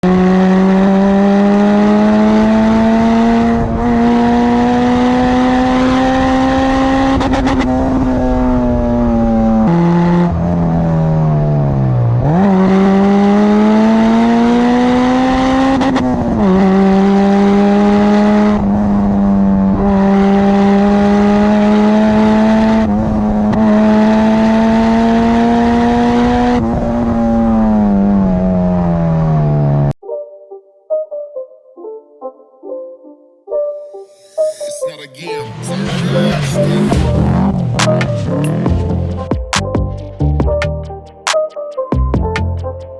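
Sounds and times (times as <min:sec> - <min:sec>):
car engine revving high: 0:00.0 - 0:30.0, 0:35.5 - 0:39.3.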